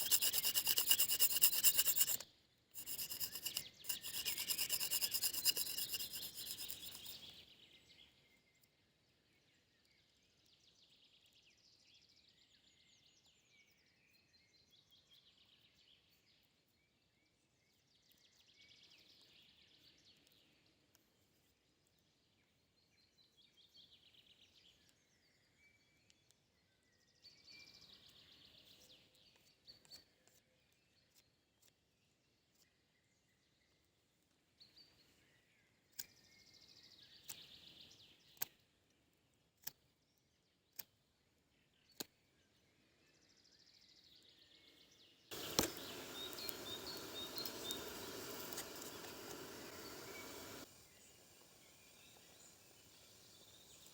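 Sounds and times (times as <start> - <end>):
faint birdsong: 0.0 - 2.2, 2.8 - 21.2, 22.8 - 31.7, 39.6 - 53.9
rasping scraping: 0.0 - 2.2, 2.8 - 7.3.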